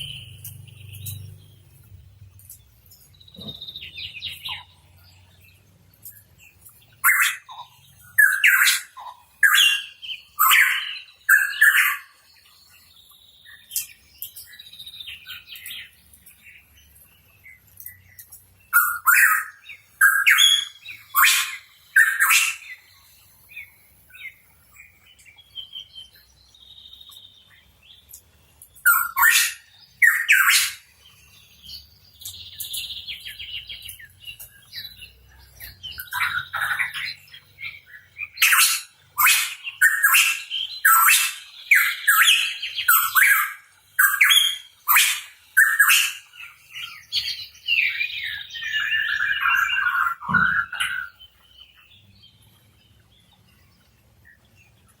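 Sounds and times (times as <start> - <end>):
soft high bird chirps: 0.0 - 55.0
bird harsh calls: 18.7 - 22.8, 28.9 - 30.9, 35.6 - 51.3.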